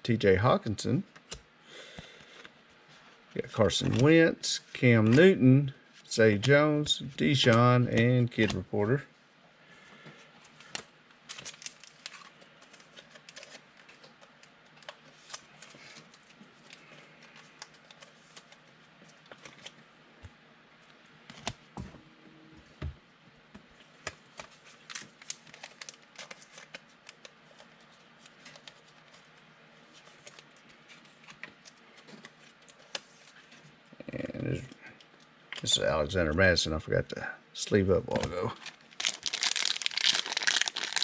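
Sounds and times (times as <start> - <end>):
trading cards rustling: 3.4 - 5.4, 6.2 - 8.7, 10.4 - 18.6, 38.1 - 41.0.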